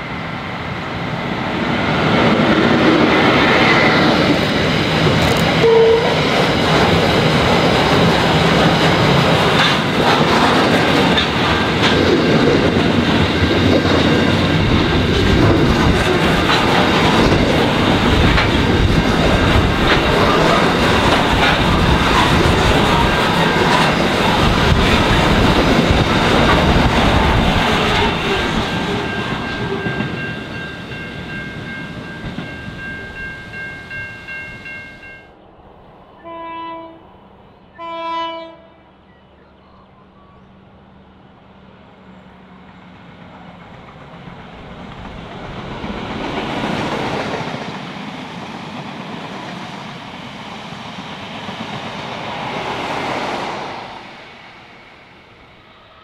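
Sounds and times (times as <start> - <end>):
broad rushing noise: 0.0 - 30.5
freight train wheels clattering: 2.0 - 35.0
diesel train horn blasts: 5.6 - 6.3, 36.2 - 37.1, 37.7 - 38.9
steady high ringing: 28.4 - 35.4.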